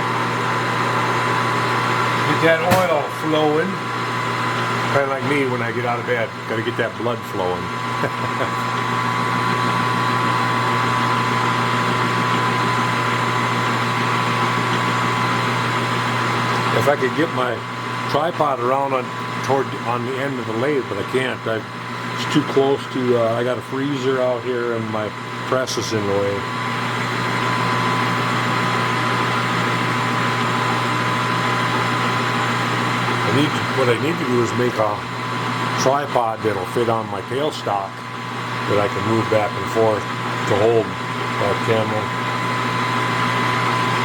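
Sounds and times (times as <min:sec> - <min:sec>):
metal lathe humming and whining: 0:00.0 - 0:44.0.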